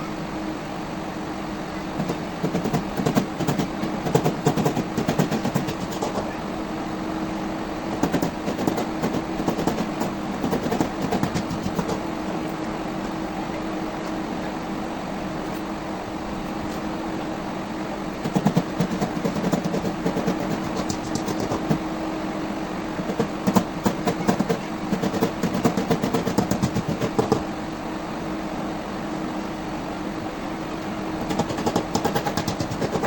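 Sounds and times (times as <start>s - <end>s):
rough rapid clattering: 18.2s - 21.8s.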